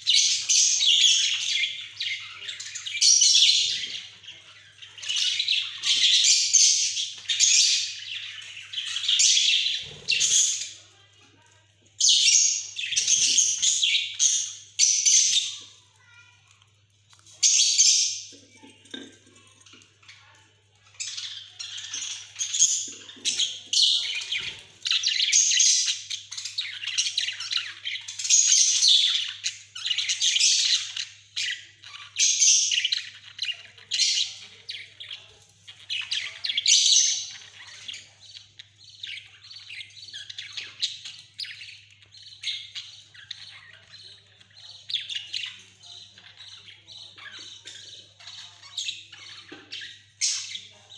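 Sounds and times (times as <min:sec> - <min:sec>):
budgerigars chattering: 0:00.0 - 0:10.8, 0:21.0 - 0:50.8.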